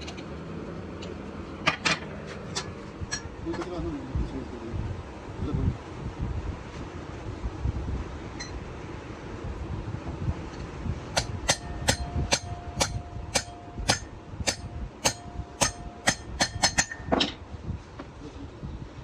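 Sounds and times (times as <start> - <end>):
hammer striking metal: 11.2 - 17.3.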